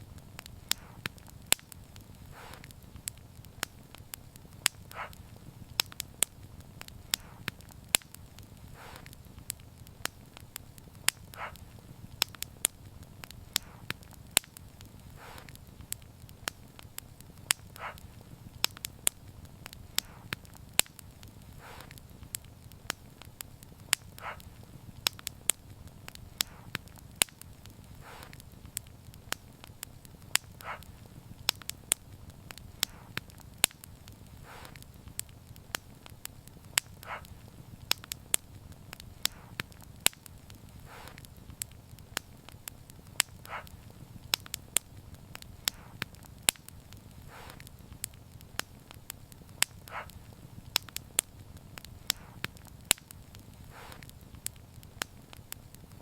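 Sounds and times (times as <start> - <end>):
soft hiss of fire: 0.0 - 56.0
wood fire crackling: 0.0 - 56.0.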